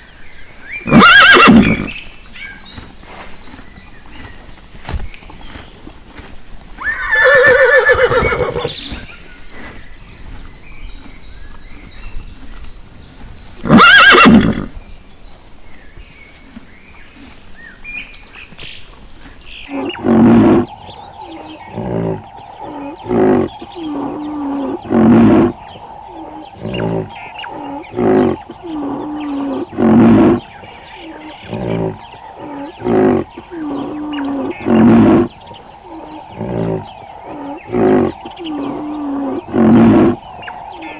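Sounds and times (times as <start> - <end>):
animal calling: 0.8 - 1.9, 6.8 - 9.1, 19.7 - 40.9
horse whinnying: 0.9 - 1.9, 6.8 - 9.0, 13.7 - 14.7, 19.7 - 40.9.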